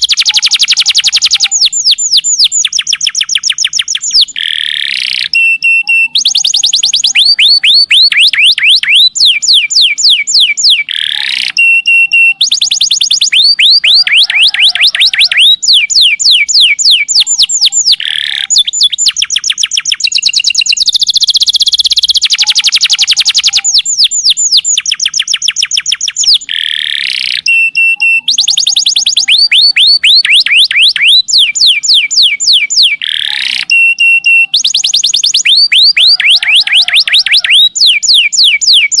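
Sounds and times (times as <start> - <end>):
canary held whistles: 0.0 - 39.0
canary singing trills: 0.0 - 39.0.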